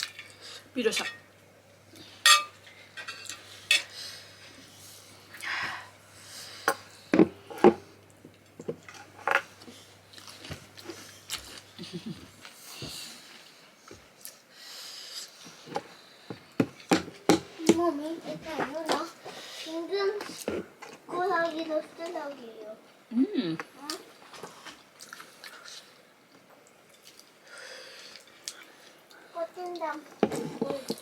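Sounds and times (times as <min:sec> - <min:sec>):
plate and utensils clinking: 0:00.9 - 0:01.3, 0:02.2 - 0:03.9
chewing: 0:10.1 - 0:12.6, 0:23.8 - 0:27.4.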